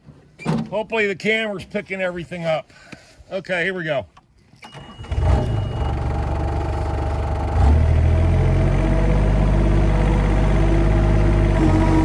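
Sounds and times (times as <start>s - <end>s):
work machine engine revving: 7.4s - 12.0s.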